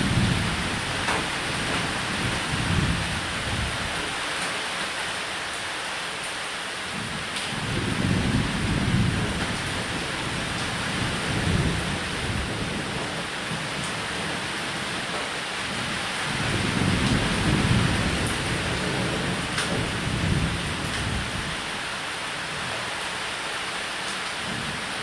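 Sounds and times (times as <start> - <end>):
low rolling thunder: 0.0 - 4.2, 7.0 - 15.1, 15.7 - 21.7
rain falling on a roof: 0.0 - 25.0.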